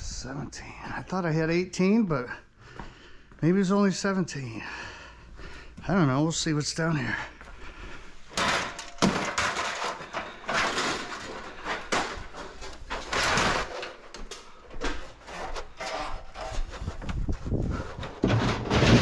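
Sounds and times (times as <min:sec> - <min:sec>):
computer cases scraping and sliding: 0:08.4 - 0:19.0.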